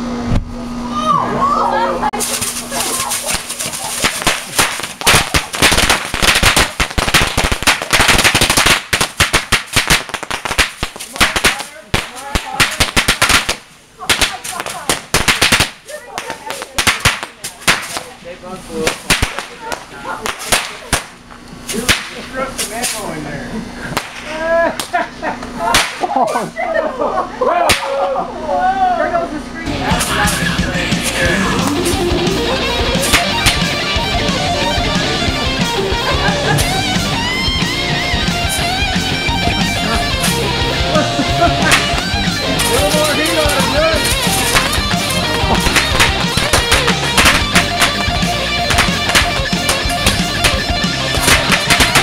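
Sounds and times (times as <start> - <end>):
hissing rush: 2.2 - 18.1
fireworks banging and crackling: 2.2 - 18.2, 18.8 - 23.0, 23.9 - 24.3, 29.9 - 35.1, 40.1 - 52.0.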